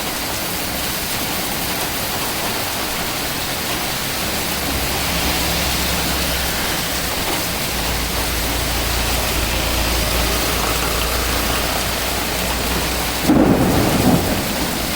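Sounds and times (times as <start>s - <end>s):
heavy rain hissing: 0.0s - 14.9s
low rumble: 5.8s - 14.9s.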